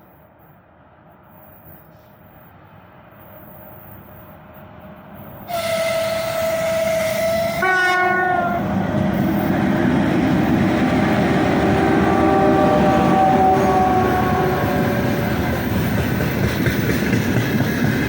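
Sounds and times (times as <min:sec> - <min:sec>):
freight train rumble: 0:00.0 - 0:18.0
locomotive horn: 0:05.5 - 0:08.8, 0:11.6 - 0:15.4.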